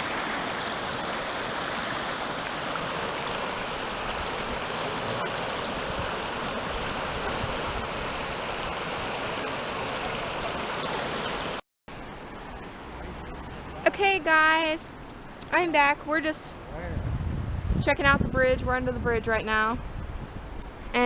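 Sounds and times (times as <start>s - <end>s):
stream water rushing: 0.0s - 16.8s.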